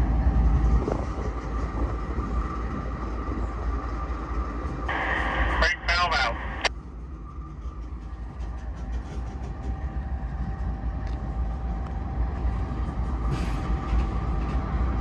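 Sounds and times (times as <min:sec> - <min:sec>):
freight train wheels rumbling: 0:00.0 - 0:15.0
faint steady whine: 0:04.9 - 0:06.7.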